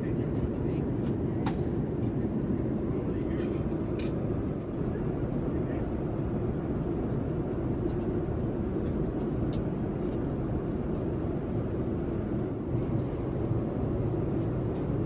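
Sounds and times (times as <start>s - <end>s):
airliner cabin engine rush: 0.0s - 15.0s.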